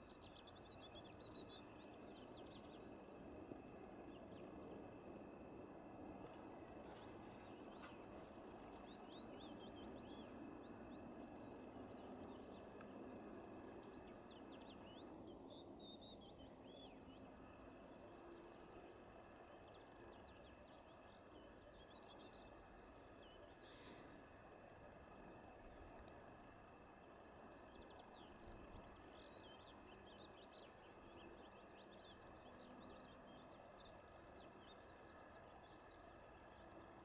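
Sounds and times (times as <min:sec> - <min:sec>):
low background noise: 0:00.0 - 0:37.0
small birds twittering: 0:26.9 - 0:37.0.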